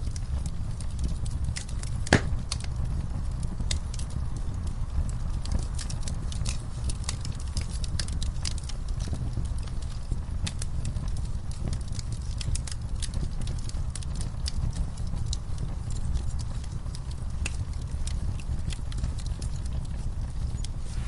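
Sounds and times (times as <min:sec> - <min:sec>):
fireplace crackling and popping: 0:00.0 - 0:21.0
soft rainfall: 0:00.0 - 0:21.0.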